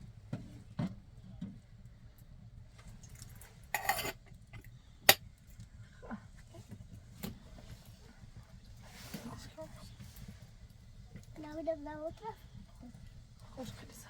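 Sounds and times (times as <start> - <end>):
light knocks and clatters: 0.1 - 1.8.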